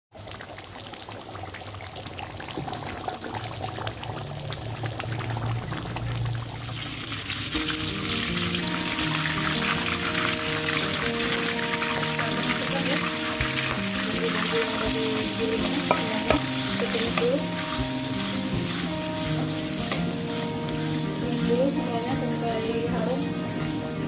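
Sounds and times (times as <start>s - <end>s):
oil sizzling in a pan: 0.1s - 24.0s
background music with held notes: 6.8s - 24.0s.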